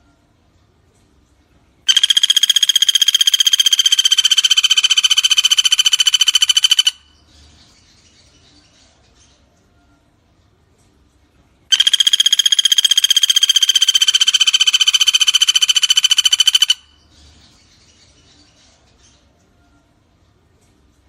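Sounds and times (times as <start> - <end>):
bird singing rapid trill: 1.9 - 9.2, 11.7 - 19.9.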